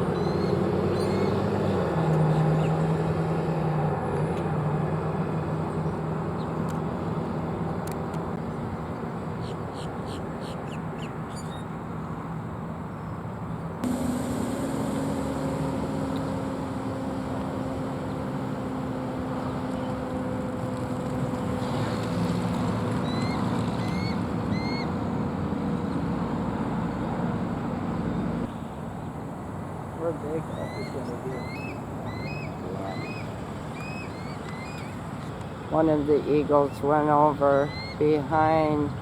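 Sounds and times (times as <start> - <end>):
engine drone: 13.8 - 39.0
short rising bird chirps: 30.5 - 35.0.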